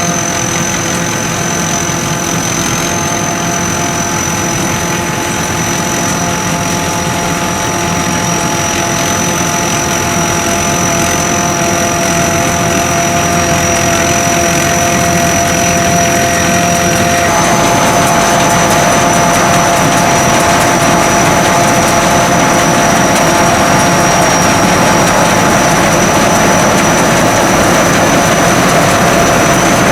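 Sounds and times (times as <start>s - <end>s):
combine harvester running: 0.0s - 29.9s.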